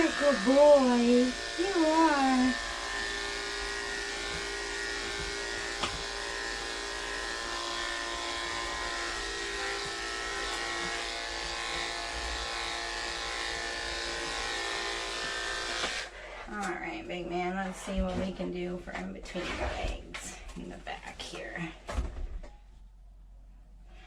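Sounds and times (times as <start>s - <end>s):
electric clippers humming: 0.0s - 16.2s.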